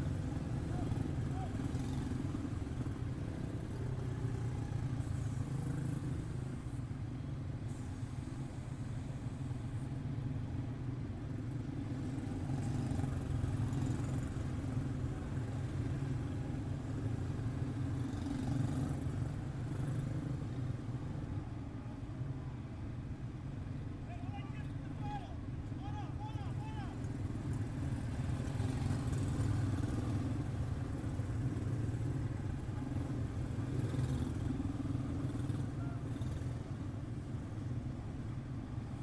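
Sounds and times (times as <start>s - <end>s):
race car engines droning: 0.0s - 6.8s.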